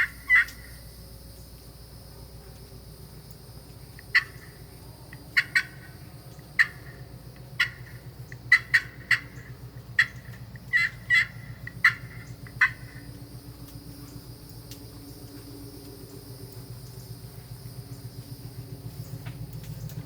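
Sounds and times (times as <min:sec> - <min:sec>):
turkey call clucks: 0:00.0 - 0:00.8, 0:04.0 - 0:13.1
steady low hum: 0:00.0 - 0:20.0.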